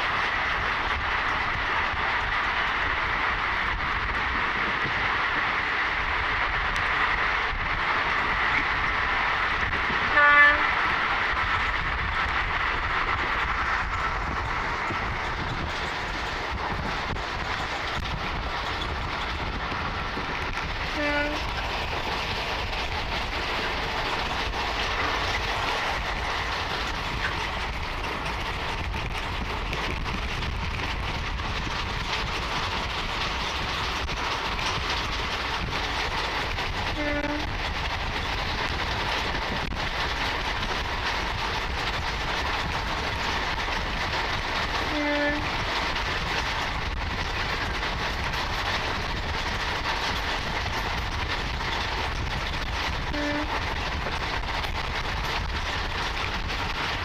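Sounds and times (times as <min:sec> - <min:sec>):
wheel and rail noise: 0:00.0 - 0:57.0
train horn toots: 0:10.0 - 0:10.7, 0:20.9 - 0:21.5, 0:36.9 - 0:37.5, 0:44.9 - 0:45.5, 0:53.1 - 0:53.7.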